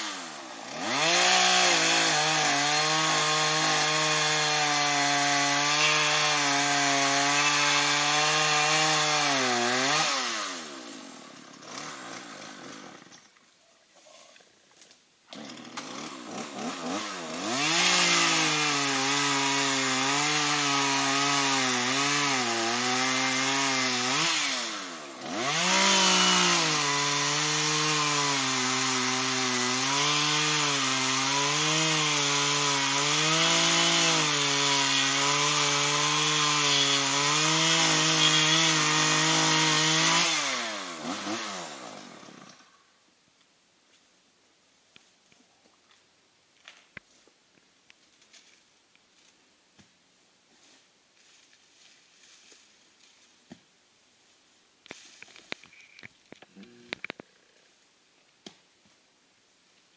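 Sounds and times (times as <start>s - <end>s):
chainsaw cutting wood: 0.0s - 13.4s, 15.3s - 42.8s.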